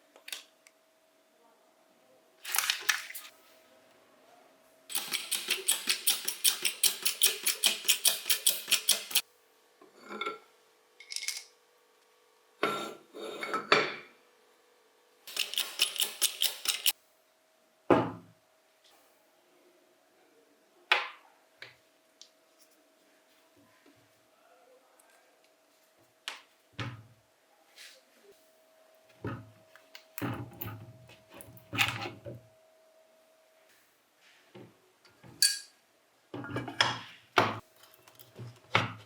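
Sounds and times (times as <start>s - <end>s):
metal tools clinking: 35.4s - 35.7s.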